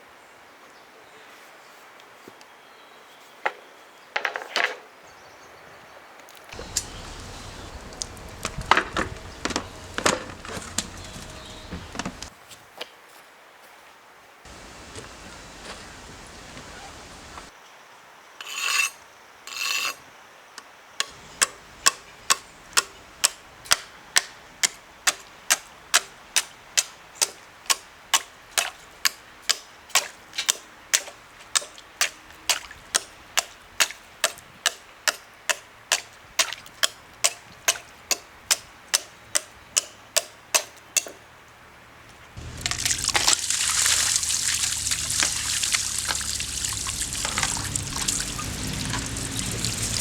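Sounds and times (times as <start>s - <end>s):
rasping scrapes: 18.4s - 20.0s.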